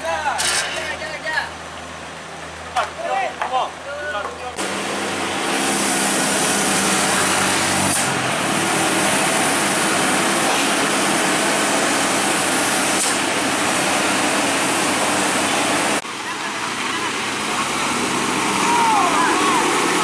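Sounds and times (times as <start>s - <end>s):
loud steady hiss: 4.6s - 20.0s.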